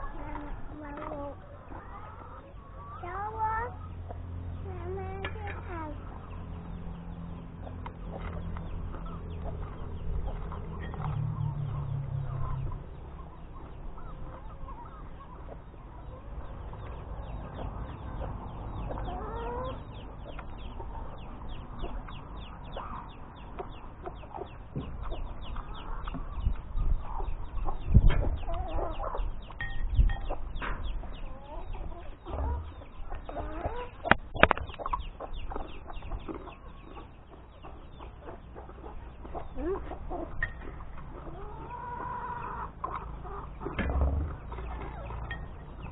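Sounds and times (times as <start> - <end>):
chickens clucking: 0.0 - 45.9
loud knocks: 43.7 - 44.5.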